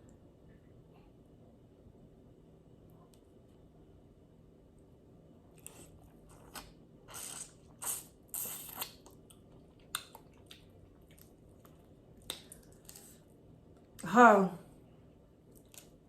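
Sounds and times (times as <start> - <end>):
chewing and biting: 5.5 - 13.2
mouth clicks and smacks: 5.6 - 13.1.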